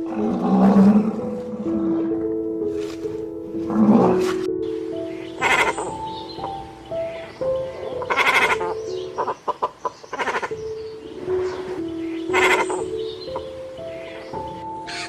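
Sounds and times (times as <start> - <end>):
background music sustained notes: 0.0 - 15.0
animal calling loudly: 5.2 - 13.5.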